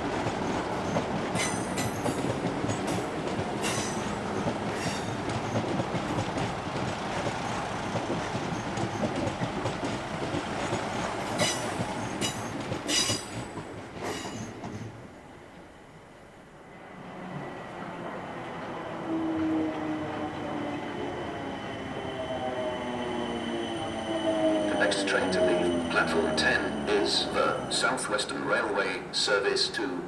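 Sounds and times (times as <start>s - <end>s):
train wheels clickety-clack: 0.0s - 15.1s.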